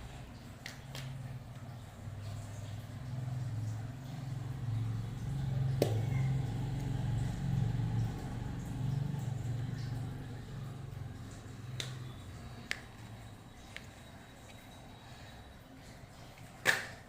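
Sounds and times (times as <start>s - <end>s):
wavering motor hum: 2.0s - 15.7s.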